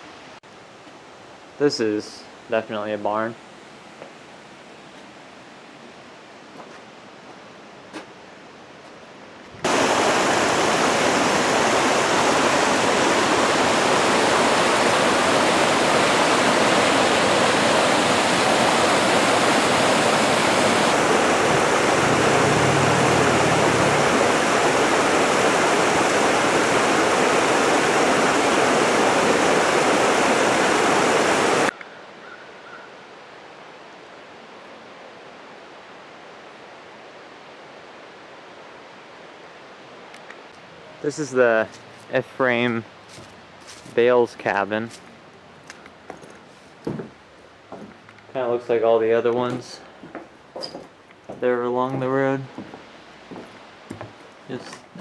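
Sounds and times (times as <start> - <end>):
rushing stream water: 9.6 - 31.8, 34.0 - 48.1.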